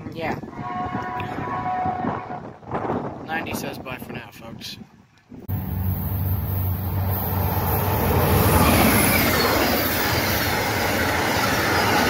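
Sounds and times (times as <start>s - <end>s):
locomotive engine hum: 5.5s - 12.0s
train wheels rushing on rails: 5.5s - 12.0s.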